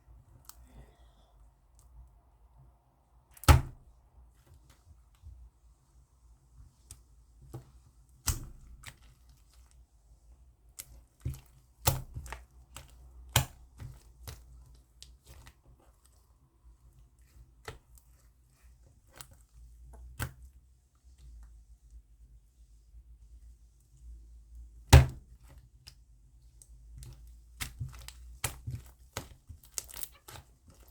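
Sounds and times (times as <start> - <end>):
slime squished by hand: 8.1 - 9.8, 10.6 - 16.3, 26.8 - 30.9.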